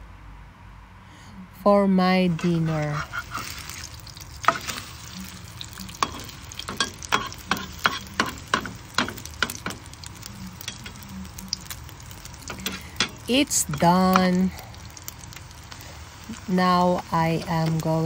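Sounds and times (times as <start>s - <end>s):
ham and egg sizzling in oil: 2.2s - 18.0s
spatula scraping and tapping pan: 2.3s - 11.0s, 11.6s - 14.4s.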